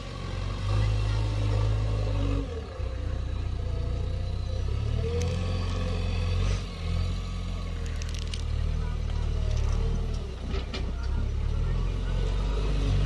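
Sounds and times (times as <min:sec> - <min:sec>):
diesel machinery droning: 0:00.0 - 0:13.0
knocks and scrapes of digging: 0:07.8 - 0:11.0.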